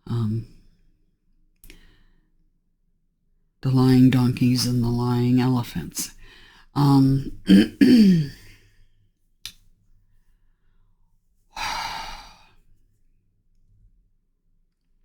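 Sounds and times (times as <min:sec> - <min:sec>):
person sighing: 0:11.6 - 0:12.5
long breathy exhale: 0:11.6 - 0:12.6.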